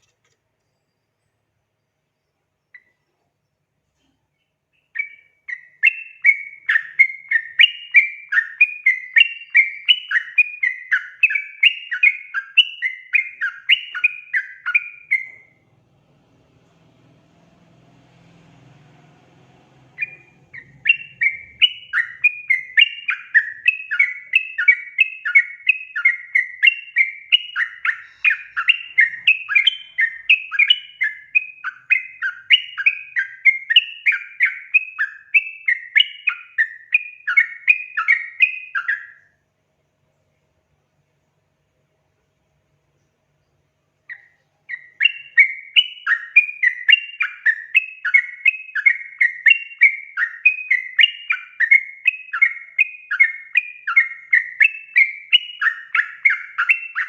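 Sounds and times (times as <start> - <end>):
faint low hum: 0.0 - 57.0
bird chattering: 19.9 - 35.3.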